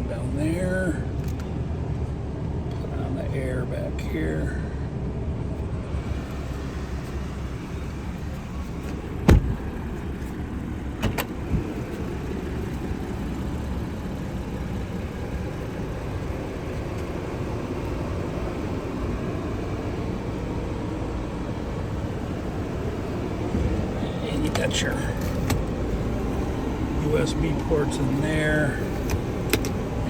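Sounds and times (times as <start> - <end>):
steady low rumble: 0.0 - 30.0
car door shutting: 6.1 - 12.0, 22.0 - 27.8, 28.8 - 30.0.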